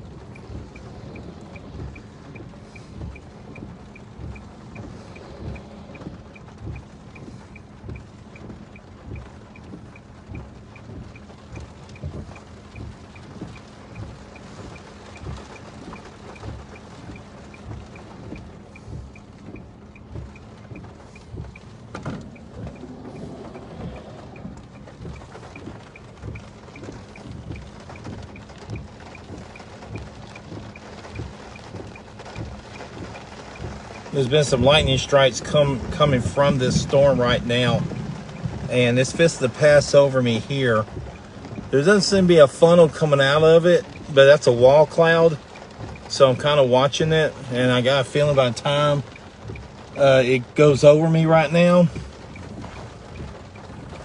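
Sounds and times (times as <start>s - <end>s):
faint regular ticking: 0.0s - 54.0s
rain: 0.0s - 54.0s
low thumps: 16.4s - 40.0s
storm wind: 20.6s - 27.7s, 34.1s - 39.9s.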